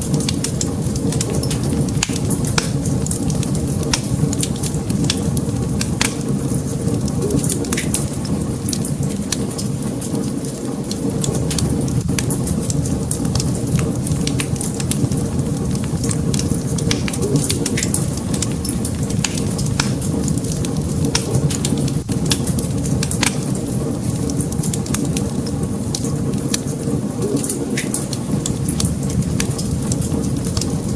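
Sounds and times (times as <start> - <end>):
wood fire crackling: 0.0 - 30.9.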